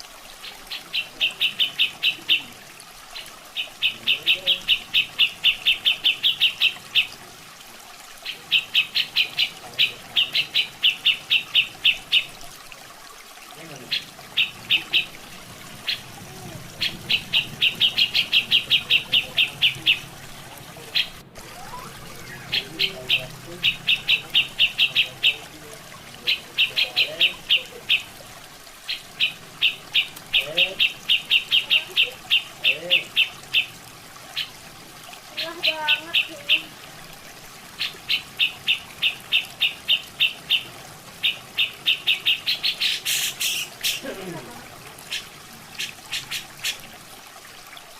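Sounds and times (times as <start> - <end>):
running water: 0.0 - 47.9
bird calling high notes: 13.9 - 28.2.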